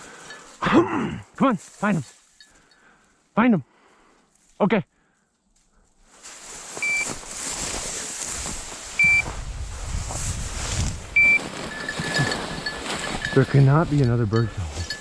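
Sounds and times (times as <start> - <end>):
wind and brush on microphone: 6.2 - 15.0
high beeps: 6.8 - 7.1, 9.0 - 9.3, 11.2 - 12.3.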